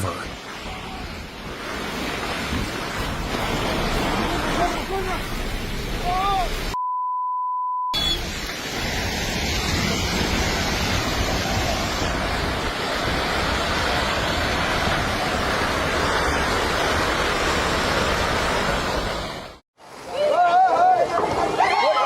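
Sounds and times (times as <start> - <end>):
landslide debris rushing: 0.1 - 6.8.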